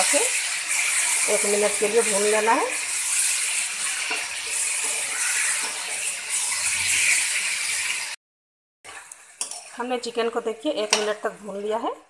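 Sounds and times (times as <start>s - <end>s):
chicken sizzling in hot oil: 0.0s - 8.2s, 8.9s - 12.0s
spatula scraping a pan: 0.4s - 8.1s, 8.9s - 9.9s.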